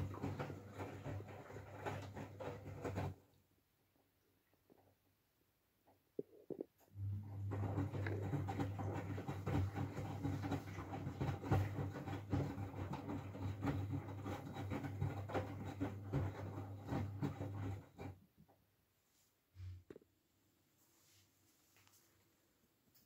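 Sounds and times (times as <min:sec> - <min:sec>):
laundry and water sloshing: 0:00.0 - 0:03.3, 0:07.1 - 0:18.0
washing machine motor hum: 0:00.0 - 0:03.3, 0:06.9 - 0:18.3.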